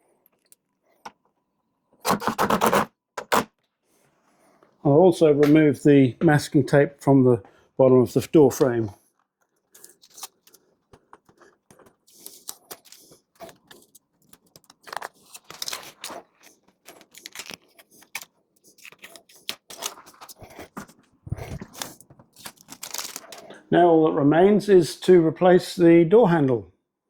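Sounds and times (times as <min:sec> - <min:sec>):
masking tape peeling: 0:02.0 - 0:03.5, 0:12.1 - 0:20.4.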